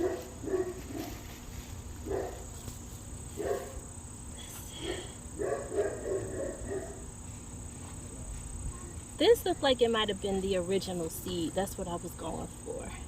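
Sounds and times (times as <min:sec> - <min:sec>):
dog barking: 0:00.0 - 0:01.1, 0:02.0 - 0:02.4, 0:03.4 - 0:03.8, 0:04.8 - 0:07.0
crickets chirring: 0:00.0 - 0:13.0.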